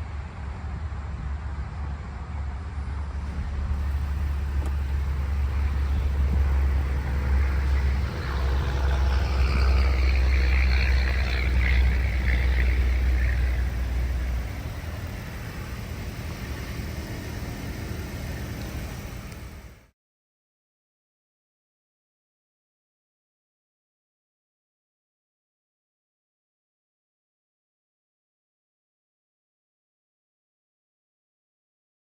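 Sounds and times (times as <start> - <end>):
road and wind noise: 0.0 - 19.9
car driving rumble: 3.1 - 19.9.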